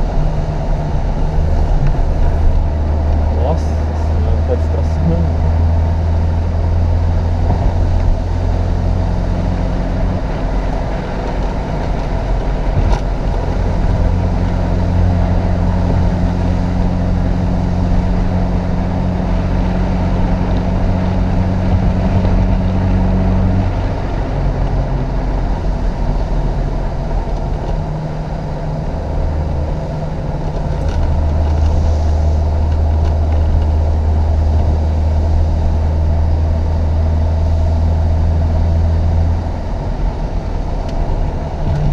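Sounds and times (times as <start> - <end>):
car engine running under load: 0.0 - 41.9.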